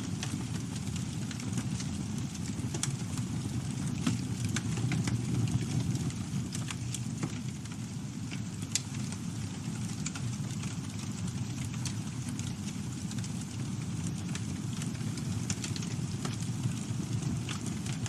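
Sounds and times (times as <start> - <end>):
rumble of flames: 0.0 - 18.0
wood crackling and popping: 0.0 - 18.0.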